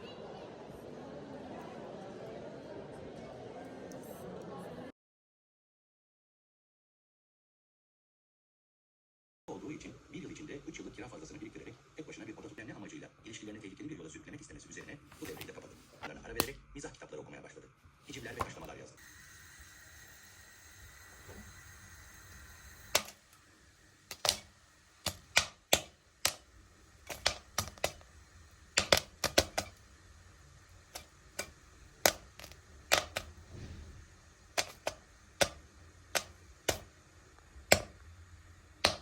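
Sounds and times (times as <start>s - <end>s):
sharp irregular clicks and taps: 24.1s - 29.8s, 30.9s - 33.3s, 34.6s - 38.0s, 38.8s - 39.0s.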